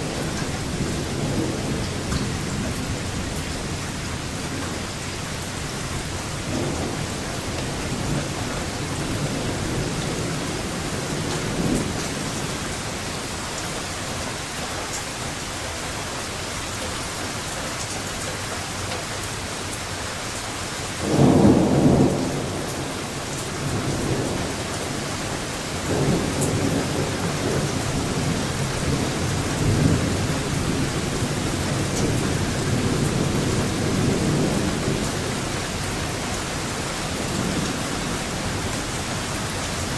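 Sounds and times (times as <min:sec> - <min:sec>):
rolling thunder: 0:00.0 - 0:12.9, 0:21.0 - 0:39.9
steady rain: 0:00.0 - 0:39.9.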